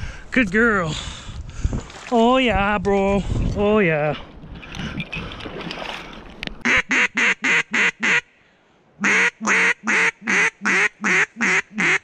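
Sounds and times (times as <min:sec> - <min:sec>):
duck call quacks: 0:06.6 - 0:08.3, 0:09.0 - 0:12.0.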